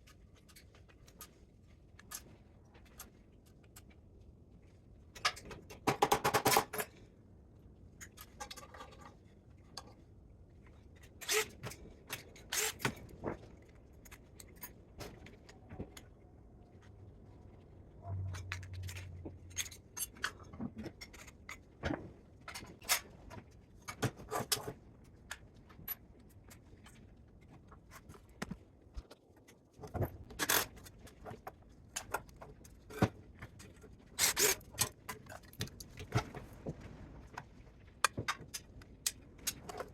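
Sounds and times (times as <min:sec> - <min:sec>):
low hum: 0:16.2 - 0:19.8
metallic clinks and scrapes: 0:18.0 - 0:21.6.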